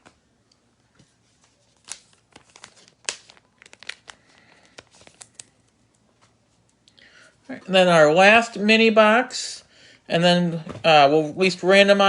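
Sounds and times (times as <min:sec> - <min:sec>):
card packaging crinkling and tearing: 0:01.4 - 0:05.8.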